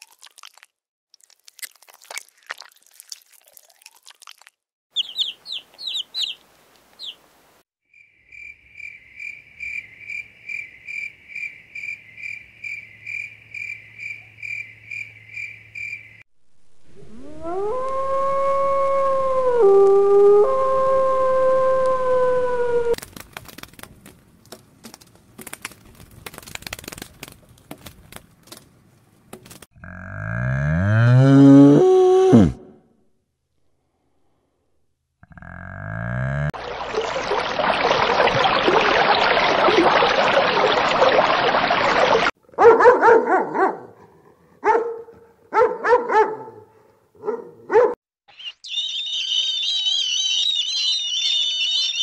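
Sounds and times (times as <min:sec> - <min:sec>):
high chirps: 0:05.0 - 0:06.4, 0:48.3 - 0:52.0
wolf howling: 0:17.0 - 0:23.0.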